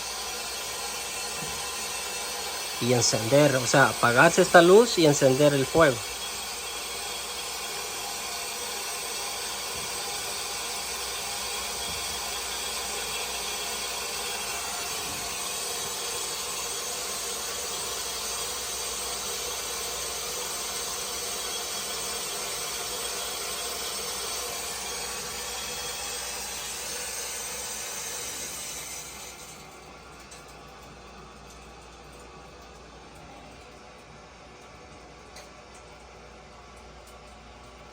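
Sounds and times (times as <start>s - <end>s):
water hissing through valve: 0.0s - 29.6s.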